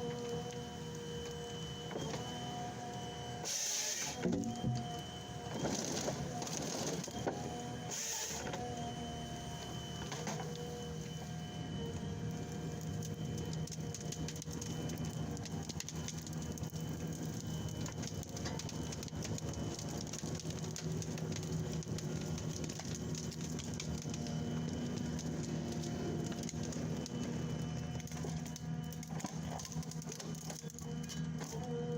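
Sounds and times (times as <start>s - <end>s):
wood crackling and snapping: 5.6s - 8.8s, 12.3s - 31.6s.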